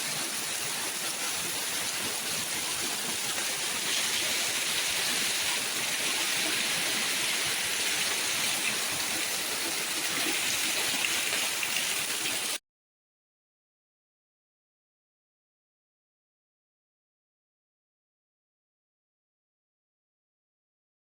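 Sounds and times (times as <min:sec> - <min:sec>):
water rushing: 0:00.0 - 0:12.6.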